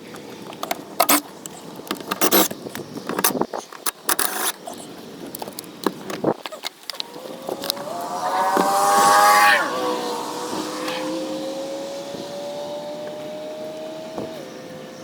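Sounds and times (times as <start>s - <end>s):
plastic trim clicks and rattles: 0.5s - 4.6s.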